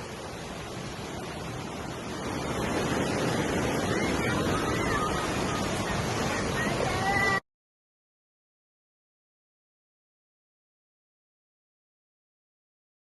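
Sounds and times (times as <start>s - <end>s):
floodwater rushing: 0.0s - 7.4s.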